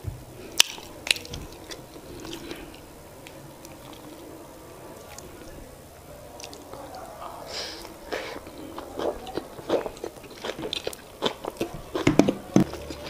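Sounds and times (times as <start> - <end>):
wet chewing and lip smacks: 0.5 - 13.0.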